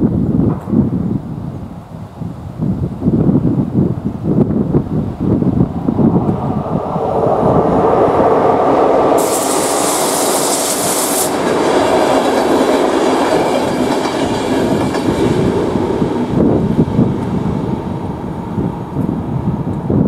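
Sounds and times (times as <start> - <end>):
train wheels rumbling on rails: 4.5 - 20.0
sharp high-pitched hiss: 9.1 - 14.3.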